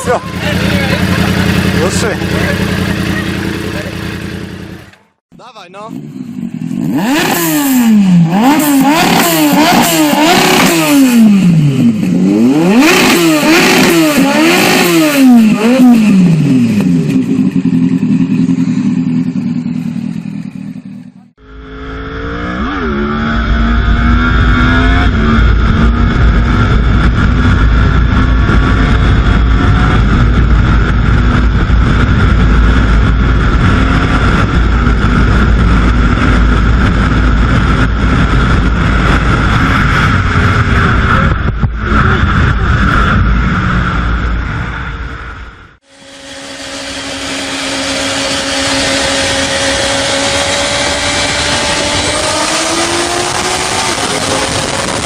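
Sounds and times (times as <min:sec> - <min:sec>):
engine drone with low rumble: 0:00.0 - 0:05.2, 0:05.8 - 0:55.0
motorcycle engine revving: 0:00.0 - 0:55.0
exhaust crackling pops: 0:25.7 - 0:44.4.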